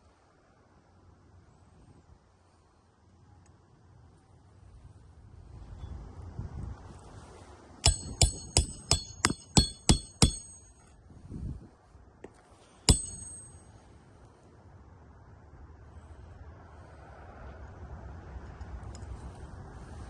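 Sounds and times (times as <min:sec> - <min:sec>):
hammer striking metal: 0:07.8 - 0:10.9, 0:12.9 - 0:13.8.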